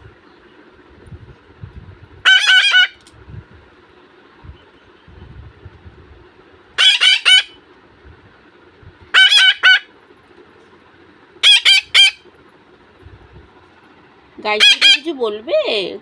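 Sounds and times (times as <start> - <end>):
parrot calling loudly: 2.2 - 3.0, 6.8 - 7.6, 9.1 - 10.0, 11.4 - 12.3, 14.5 - 15.1.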